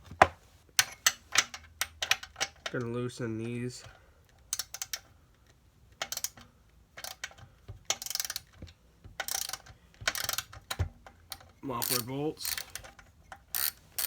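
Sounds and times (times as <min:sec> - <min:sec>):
ratchet wrench clicking: 0:04.5 - 0:05.1, 0:06.0 - 0:06.4, 0:07.0 - 0:08.6, 0:09.2 - 0:14.0.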